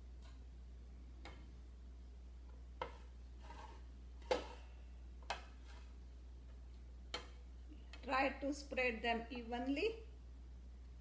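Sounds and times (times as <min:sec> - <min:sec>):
low steady hum: 0:00.0 - 0:11.0
spreading tool scraping steel plate: 0:02.9 - 0:03.9.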